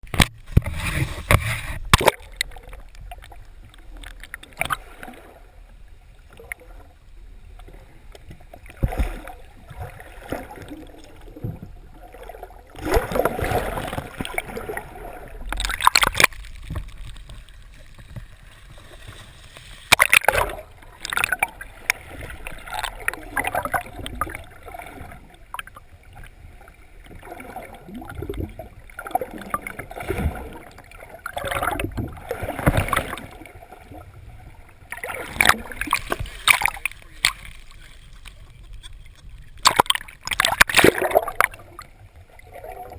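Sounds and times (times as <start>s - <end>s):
water sloshing against boat: 0.0s - 42.9s
loud water splashes: 12.2s - 16.8s, 34.9s - 37.6s, 39.6s - 41.6s.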